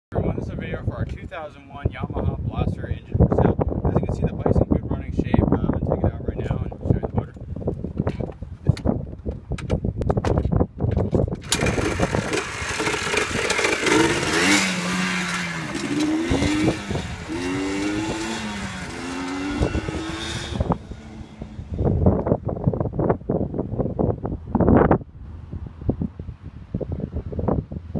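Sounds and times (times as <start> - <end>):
two-stroke engine revving: 11.4 - 22.1.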